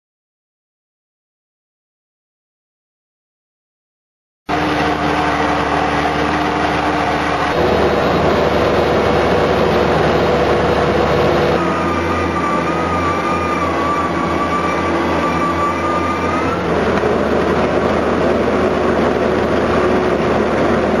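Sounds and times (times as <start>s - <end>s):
milling drum grinding pavement: 4.5s - 21.0s
wavering high whine: 4.5s - 21.0s.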